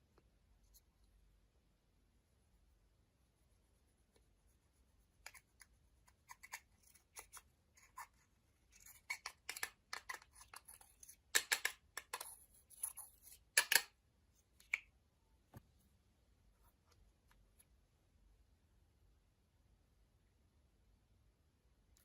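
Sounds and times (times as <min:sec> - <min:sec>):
scratchy scrapes: 0:05.2 - 0:11.2, 0:12.1 - 0:13.6.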